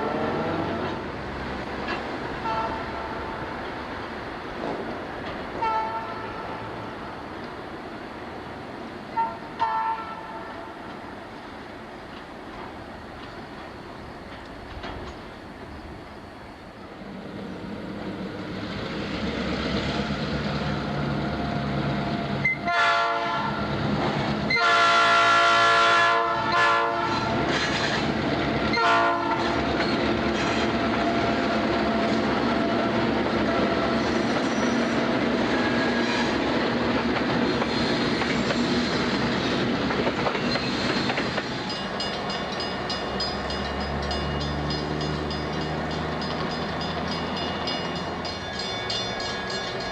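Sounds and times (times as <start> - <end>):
diesel locomotive engines: 0.0 - 49.9
train cars rolling over rails: 0.0 - 49.9
train air horn blasts: 2.4 - 3.3, 5.6 - 6.8, 9.2 - 10.9, 22.4 - 23.7, 24.5 - 27.5, 28.7 - 29.6.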